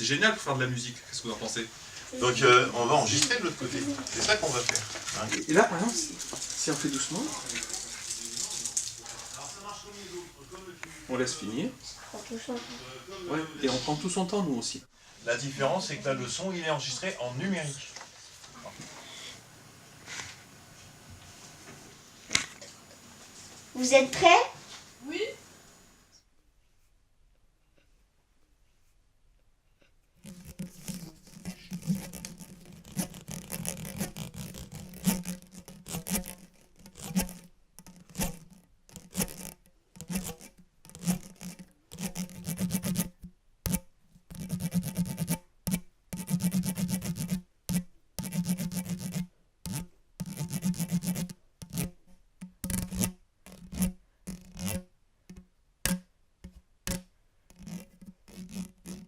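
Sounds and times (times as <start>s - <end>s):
scratching and rubbing: 0.2s - 13.0s, 29.8s - 59.0s.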